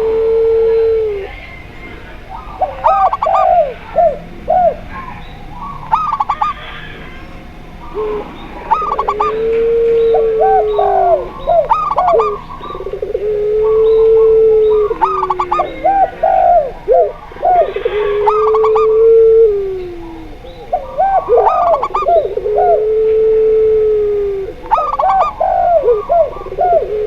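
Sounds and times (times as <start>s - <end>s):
long low dove coos: 0.0s - 27.0s
short higher dove coo notes: 7.9s - 27.0s.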